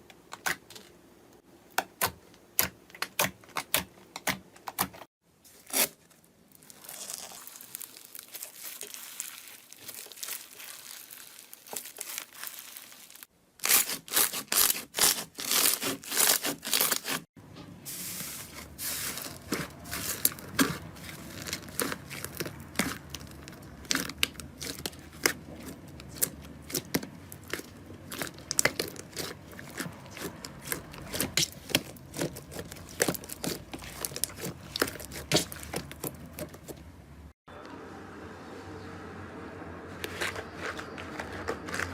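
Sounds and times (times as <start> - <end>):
slime crackling and popping: 6.6 - 17.2, 19.2 - 36.5.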